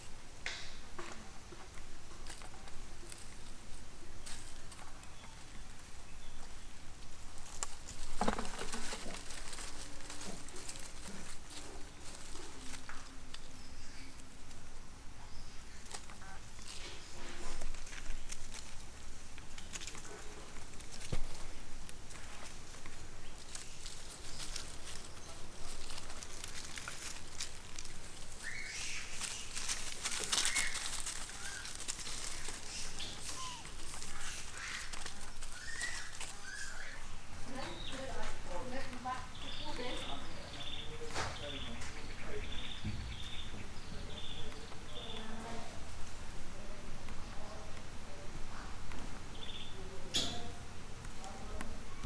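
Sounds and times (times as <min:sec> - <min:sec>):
monkeys moving with rustling patter: 0:00.8 - 0:49.5
high-pitched animal call: 0:32.6 - 0:37.2.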